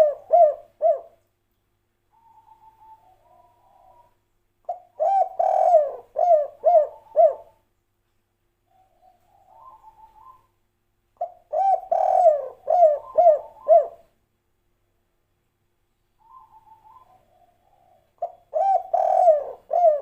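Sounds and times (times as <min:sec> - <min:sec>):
dove cooing: 0:00.0 - 0:01.2, 0:02.1 - 0:07.6, 0:08.7 - 0:10.5, 0:11.2 - 0:14.1, 0:16.2 - 0:20.0.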